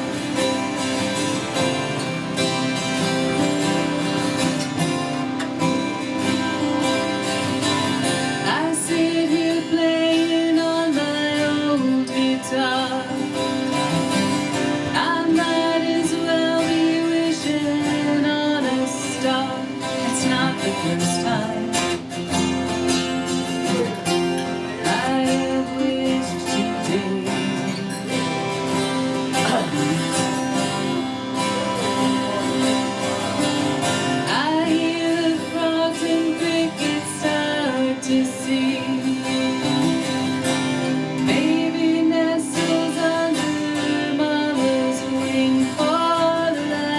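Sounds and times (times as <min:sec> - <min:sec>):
acoustic guitar strummed and picked: 0:00.0 - 0:46.9
woman singing: 0:06.3 - 0:22.6, 0:24.7 - 0:31.0, 0:32.0 - 0:46.9.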